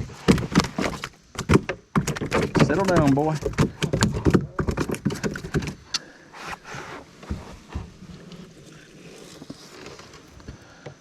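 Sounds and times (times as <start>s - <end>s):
knocks and thumps in canoe: 0.0s - 11.0s
gear rustling: 2.0s - 10.7s.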